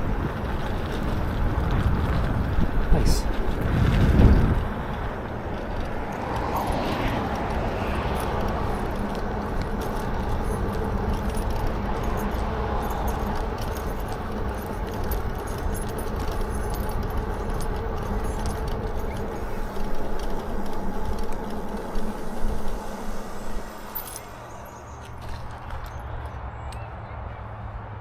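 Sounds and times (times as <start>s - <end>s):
wind on microphone: 0.0s - 15.7s
light jingling rattles: 0.0s - 26.9s
bike rolling rumble: 0.0s - 28.0s.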